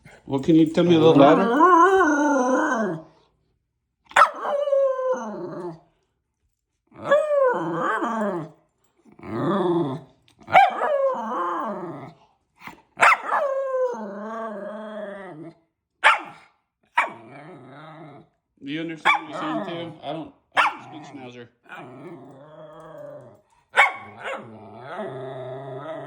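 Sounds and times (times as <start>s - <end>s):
dog growly howls and grumbles: 1.0s - 3.2s, 4.2s - 5.9s, 6.9s - 15.7s, 16.9s - 18.4s, 19.1s - 26.0s
dog high yip: 4.1s - 4.6s, 10.5s - 11.0s, 13.0s - 13.6s, 16.0s - 17.2s, 20.6s - 20.9s, 23.8s - 24.4s.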